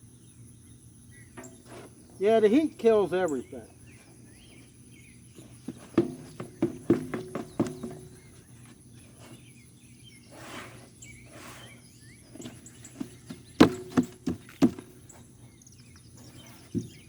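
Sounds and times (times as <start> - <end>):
sharp knocks with hollow ring: 5.9 - 8.3, 13.6 - 14.9.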